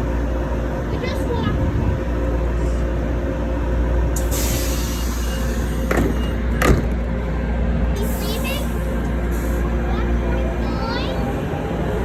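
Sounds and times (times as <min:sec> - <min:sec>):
light rail car humming: 0:00.0 - 0:12.0
sharp knocks: 0:05.9 - 0:07.1.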